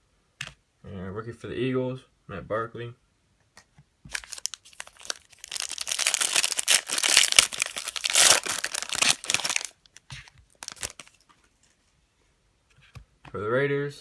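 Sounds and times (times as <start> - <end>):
plastic wrapper crinkling and tearing: 4.1 - 11.8.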